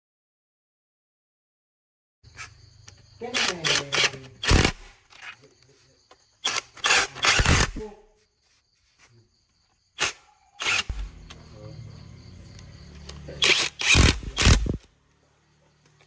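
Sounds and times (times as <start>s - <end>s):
truck engine running: 10.9s - 13.4s
loud bursts: 13.4s - 14.9s.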